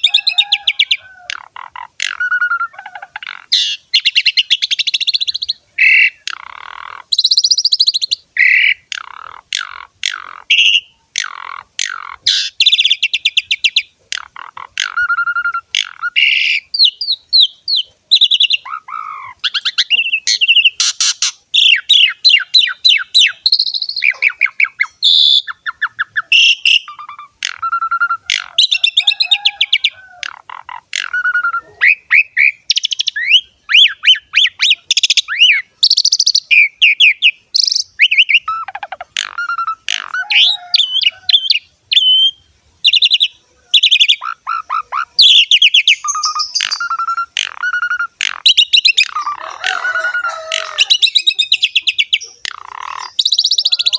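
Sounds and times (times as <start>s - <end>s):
starling singing varied song: 0.0s - 53.9s.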